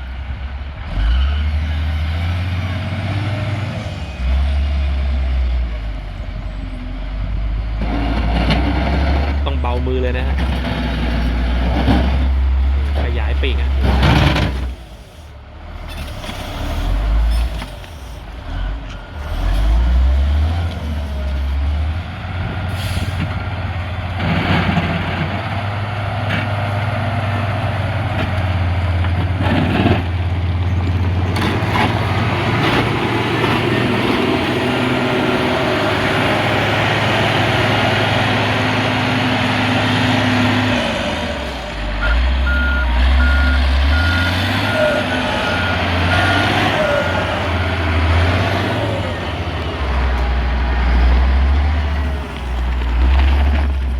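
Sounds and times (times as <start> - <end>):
diesel engine running: 0.0 - 53.9
reversing beeper: 42.0 - 48.0.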